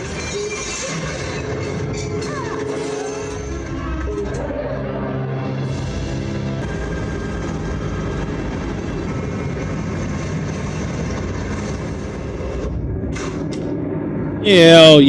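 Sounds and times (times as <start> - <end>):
sustained music tones: 0.0 - 11.0
loud machine-like rumble: 0.0 - 15.0.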